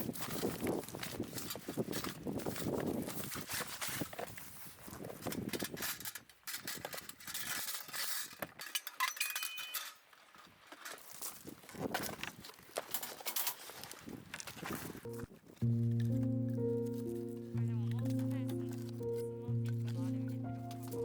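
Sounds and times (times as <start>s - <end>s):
clatter of knocks and clinks: 5.2s - 10.0s, 12.8s - 13.8s.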